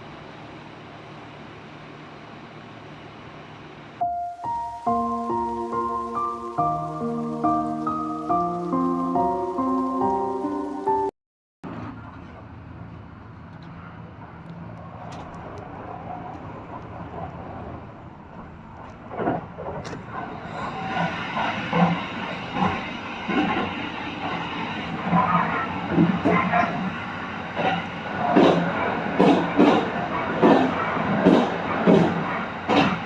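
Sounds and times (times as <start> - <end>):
train humming at platform: 0.0 - 11.1, 11.7 - 33.0
background music: 4.0 - 11.1.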